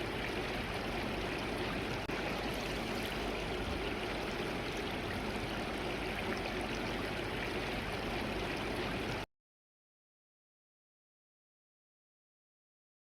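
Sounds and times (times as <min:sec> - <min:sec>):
stream flowing over rocks: 0:00.0 - 0:09.3.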